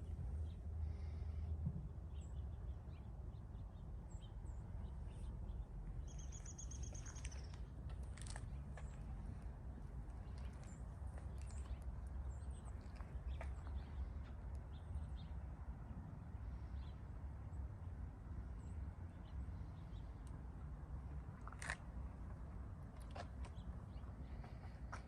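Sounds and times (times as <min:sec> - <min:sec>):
steady low rumble: 0:00.0 - 0:25.0
faint bird chirps: 0:06.0 - 0:07.6.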